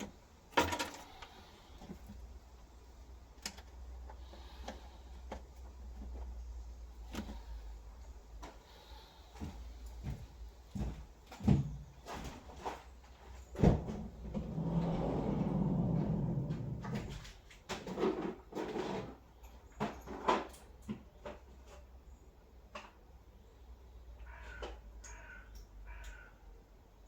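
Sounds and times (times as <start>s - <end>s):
low grinding sound: 14.3s - 17.2s.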